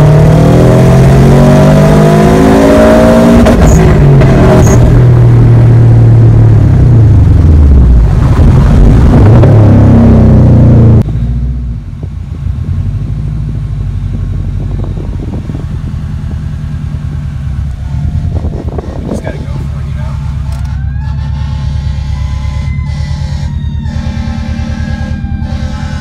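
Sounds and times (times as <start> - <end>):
car engine accelerating: 0.0 - 26.0
engine droning: 0.0 - 26.0.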